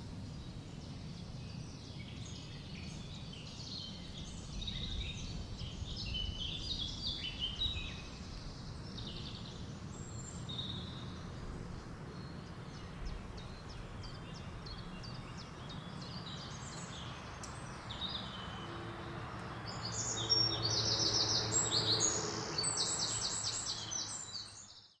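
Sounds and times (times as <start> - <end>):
low rush of wind: 0.0 - 24.7
birds chirping and singing: 12.2 - 24.7.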